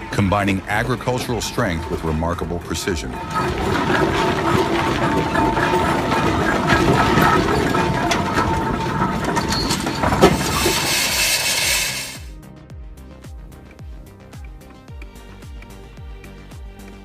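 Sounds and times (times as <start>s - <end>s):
old engine clattering: 0.0s - 12.3s
background music with a beat: 12.2s - 17.0s.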